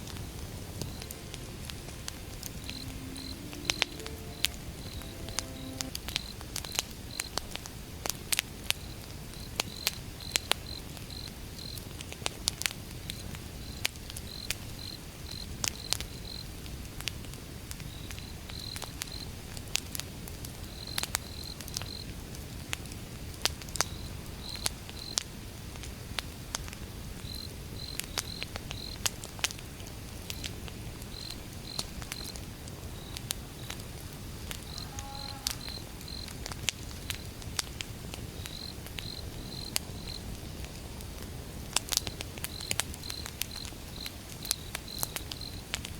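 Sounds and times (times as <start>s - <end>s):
wood fire crackling: 0.0s - 4.6s, 36.2s - 45.9s
crickets chirping: 0.0s - 6.4s, 34.6s - 36.4s, 38.3s - 40.6s.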